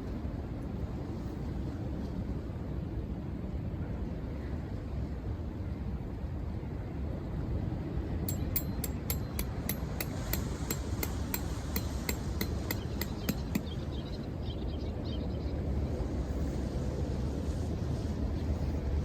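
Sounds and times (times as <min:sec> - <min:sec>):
rapid light sharp strikes: 0:08.3 - 0:13.8.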